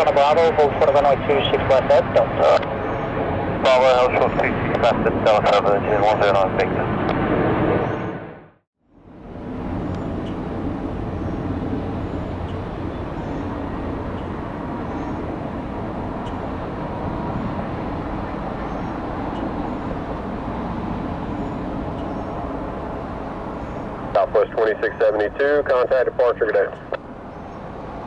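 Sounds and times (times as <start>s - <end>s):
distant traffic rumble: 0.0s - 28.0s.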